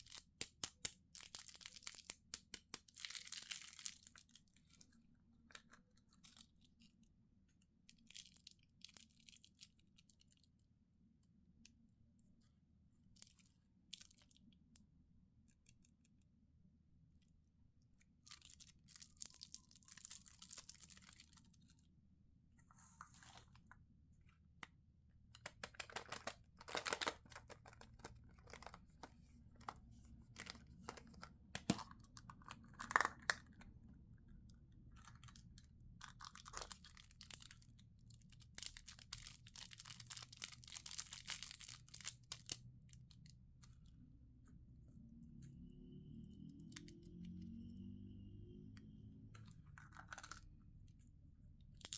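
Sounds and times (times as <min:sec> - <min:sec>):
plastic wrapper tearing: 0:00.0 - 0:04.4, 0:18.3 - 0:21.6, 0:25.4 - 0:29.8, 0:30.4 - 0:33.6, 0:35.0 - 0:37.6, 0:38.3 - 0:42.6, 0:49.8 - 0:50.5
plastic wrapper crinkling: 0:00.0 - 0:04.8, 0:18.3 - 0:21.7, 0:25.4 - 0:33.7, 0:34.9 - 0:42.6, 0:49.7 - 0:50.5.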